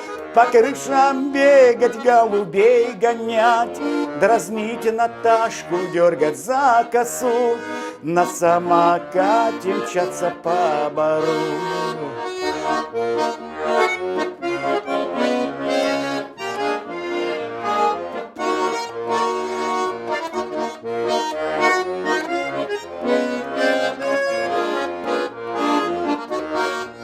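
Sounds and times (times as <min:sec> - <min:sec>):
button accordion playing: 0:00.0 - 0:27.0.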